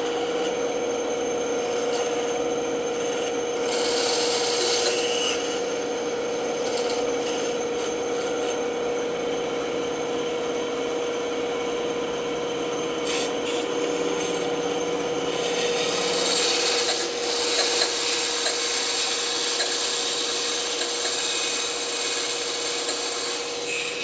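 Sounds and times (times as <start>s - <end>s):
band saw humming: 0.0s - 24.0s
saw blade cutting wood: 1.6s - 8.6s, 13.0s - 14.7s, 15.3s - 24.0s.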